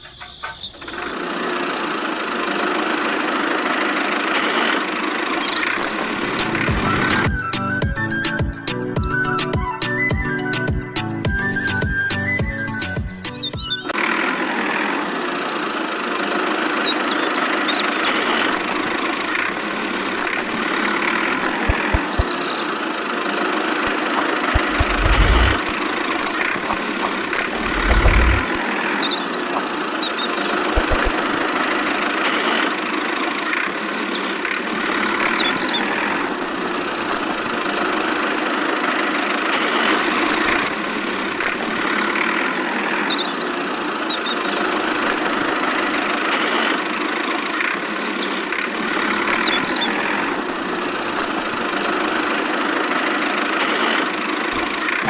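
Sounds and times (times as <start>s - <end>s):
small motor running: 0.7s - 7.4s, 13.9s - 55.0s
short low thumps: 24.6s - 25.7s, 26.7s - 28.5s.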